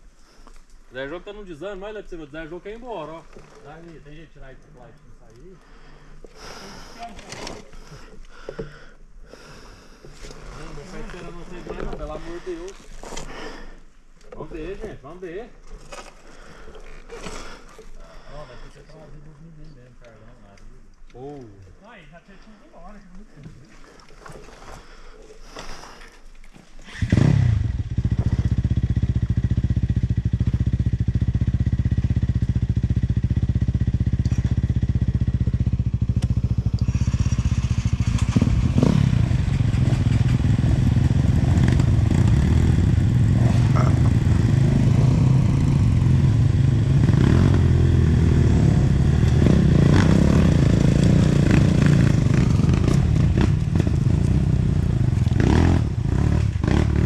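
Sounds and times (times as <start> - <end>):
motorcycle engine running: 27.0 - 57.0.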